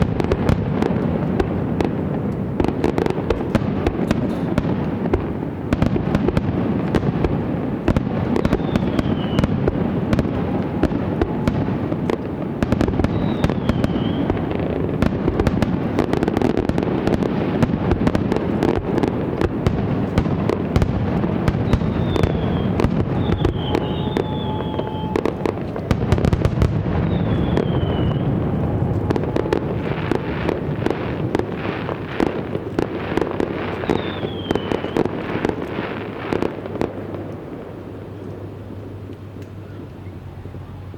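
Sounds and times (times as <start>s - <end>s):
fireworks crackling and booming: 0.0s - 40.9s
falling firework whistles: 8.2s - 14.7s, 19.7s - 31.0s, 33.6s - 35.5s.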